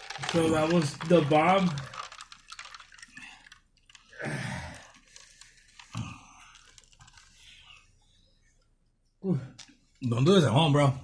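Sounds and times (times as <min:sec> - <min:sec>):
person chewing and crunching: 0:00.0 - 0:07.8
breathy sound: 0:01.8 - 0:08.6.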